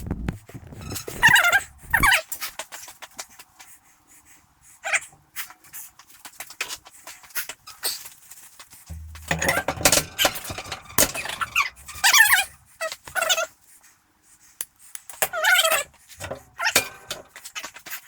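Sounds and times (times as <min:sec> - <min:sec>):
low steady hum: 0:08.9 - 0:12.6
metal tools clinking: 0:08.9 - 0:12.6, 0:15.2 - 0:17.4.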